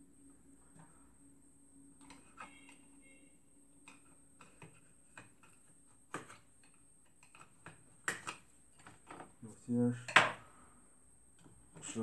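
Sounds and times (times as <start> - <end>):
plastic parts clicking and tapping: 3.8 - 9.3.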